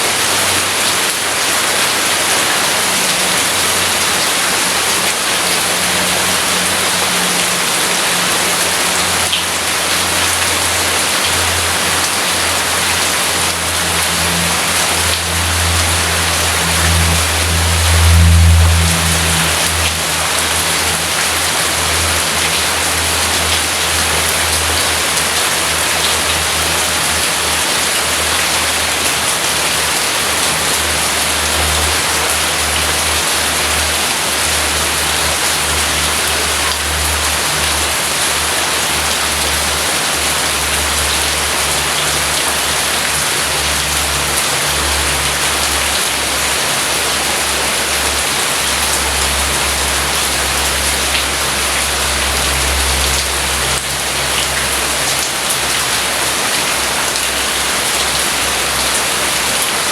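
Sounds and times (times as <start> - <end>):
heavy rain falling: 0.0 - 59.9
low rumble: 14.0 - 22.4.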